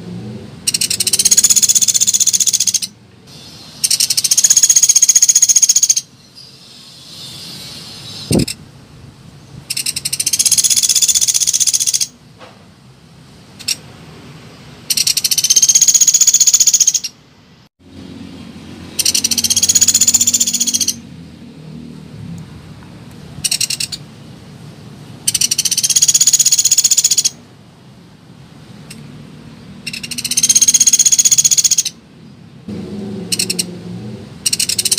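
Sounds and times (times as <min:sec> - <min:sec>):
woodpecker rattling trills: 0:00.7 - 0:03.0, 0:03.8 - 0:06.1, 0:09.7 - 0:12.1, 0:14.9 - 0:17.2, 0:18.9 - 0:21.0, 0:23.4 - 0:24.0, 0:25.3 - 0:27.4, 0:29.8 - 0:32.0, 0:33.3 - 0:33.7, 0:34.4 - 0:34.9.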